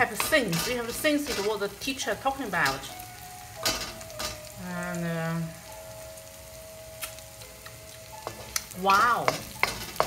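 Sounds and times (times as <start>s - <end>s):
frying in oil sizzling: 0.0s - 10.0s
wooden spoon tapping wok: 8.2s - 10.0s.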